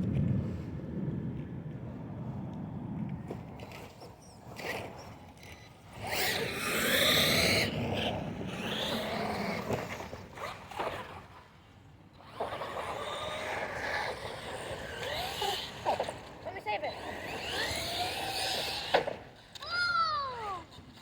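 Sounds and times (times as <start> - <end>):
toy truck motor whining: 4.2 - 11.2, 12.2 - 21.0.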